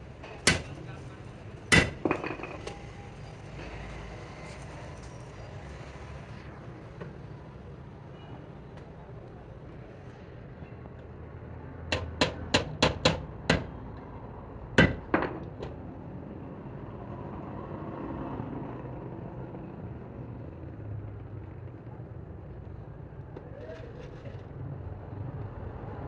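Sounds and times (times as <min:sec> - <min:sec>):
hammer strikes on metal: 0:00.3 - 0:00.8, 0:01.7 - 0:02.9, 0:11.9 - 0:13.8, 0:14.8 - 0:15.7.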